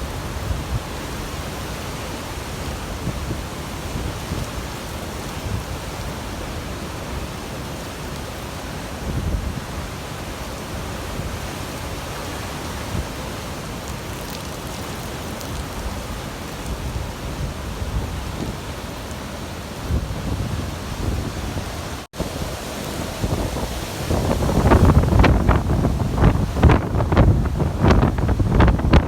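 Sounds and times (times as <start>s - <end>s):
wind buffeting microphone: 15.6s - 29.0s.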